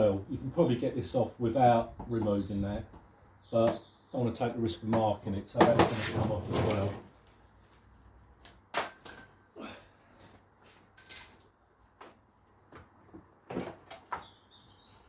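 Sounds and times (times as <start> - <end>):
metal hand tools clinking: 8.9 - 9.5, 10.2 - 12.0.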